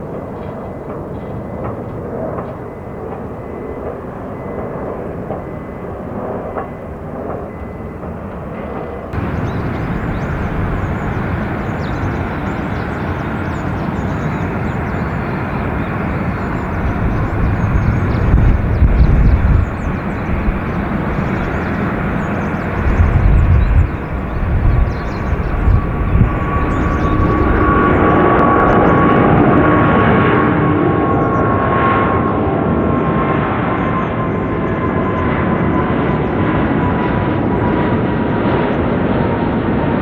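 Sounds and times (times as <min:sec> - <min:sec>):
jet engines roaring: 0:00.9 - 0:40.0
low rumbling surges: 0:09.2 - 0:30.4
turbine whine: 0:09.2 - 0:31.4.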